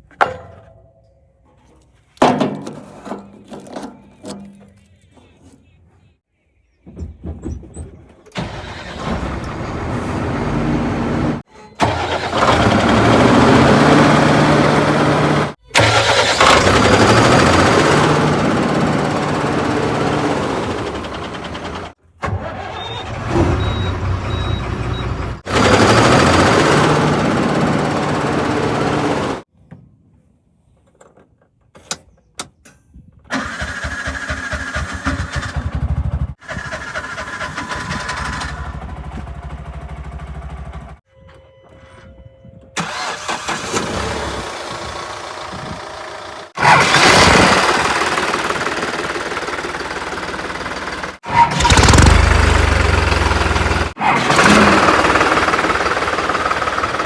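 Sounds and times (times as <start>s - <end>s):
heavy machinery diesel engines: 8.3s - 29.5s, 33.3s - 41.8s, 42.8s - 57.0s.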